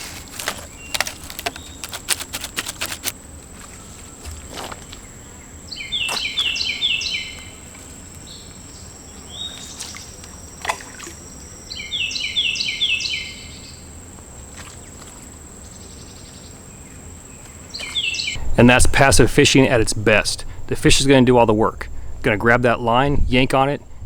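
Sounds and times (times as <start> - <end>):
songbird singing double notes: 5.7 - 7.6, 11.6 - 13.8.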